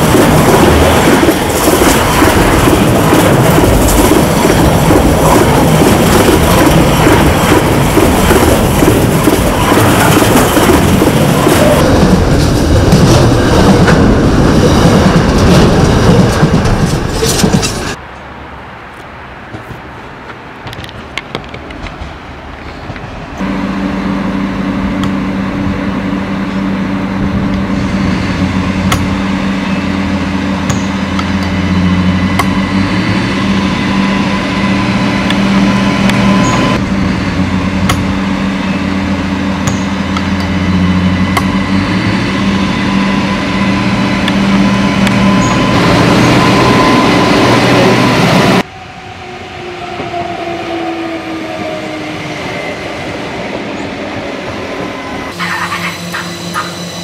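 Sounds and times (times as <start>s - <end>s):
wheels clicking on track: 0.0s - 18.0s
diesel railcar engine drone: 0.0s - 57.0s.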